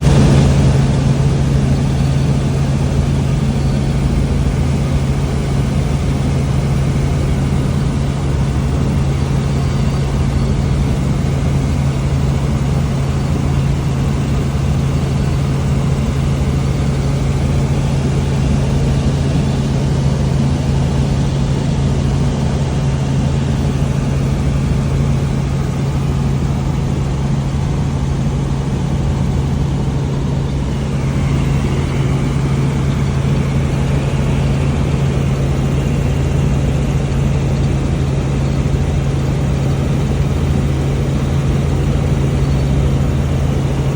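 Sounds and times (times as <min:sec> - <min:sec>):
helicopter engine and rotor drone: 0:00.0 - 0:43.9.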